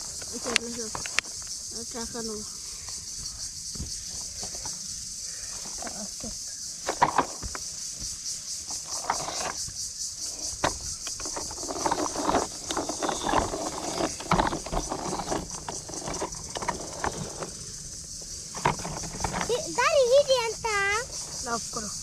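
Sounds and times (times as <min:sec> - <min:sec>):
high pulsing insect drone: 0:00.0 - 0:22.0
knocks and clattering: 0:06.8 - 0:07.7, 0:10.4 - 0:20.9.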